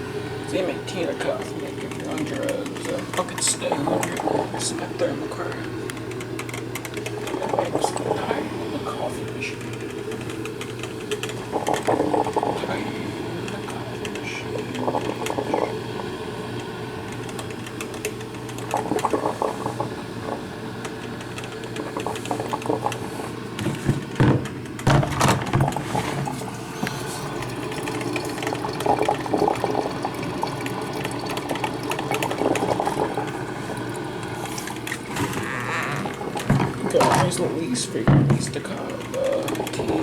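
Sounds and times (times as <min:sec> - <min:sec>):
coffee maker water gurgling: 0:00.0 - 0:40.0
steady low hum: 0:00.0 - 0:40.0.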